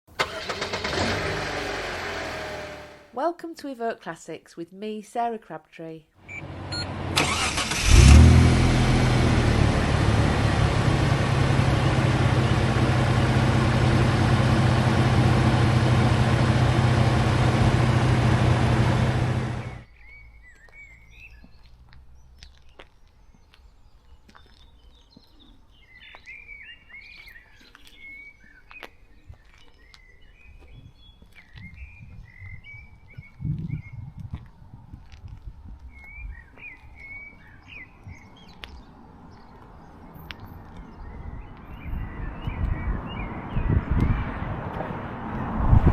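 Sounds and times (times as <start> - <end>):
car engine starting and idling: 0.1 - 3.1, 6.3 - 19.8
faint birdsong: 19.6 - 34.2, 35.8 - 44.6.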